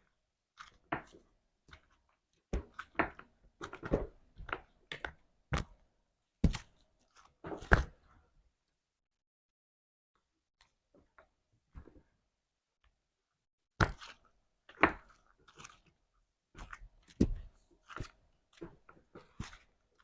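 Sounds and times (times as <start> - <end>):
slime squelching: 0.5 - 8.2, 13.8 - 20.0.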